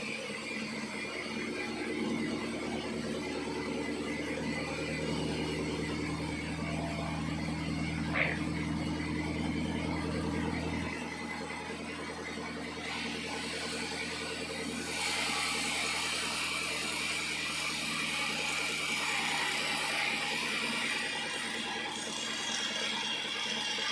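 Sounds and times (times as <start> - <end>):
sawmill machinery hum: 0.0 - 23.9.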